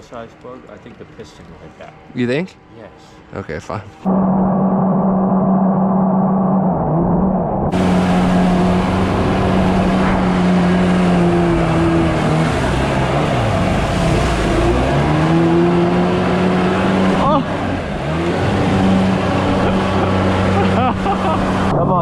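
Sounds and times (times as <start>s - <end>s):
jet ski engine running: 7.7s - 22.0s.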